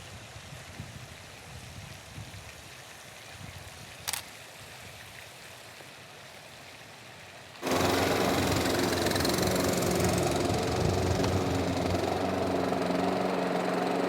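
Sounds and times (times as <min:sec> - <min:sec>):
lawn mower engine running: 0:07.6 - 0:14.0.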